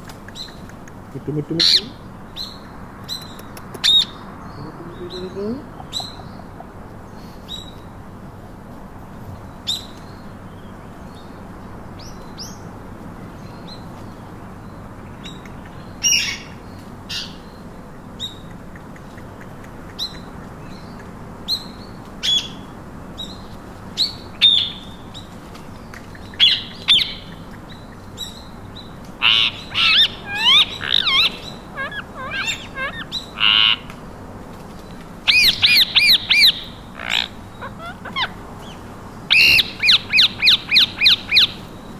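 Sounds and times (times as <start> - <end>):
parakeets calling: 0.2 - 8.3, 13.3 - 41.9.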